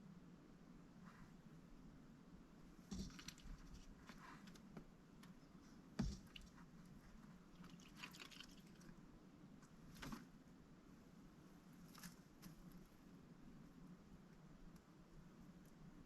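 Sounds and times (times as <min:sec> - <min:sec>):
duck bill clicking in water: 0:07.6 - 0:08.9.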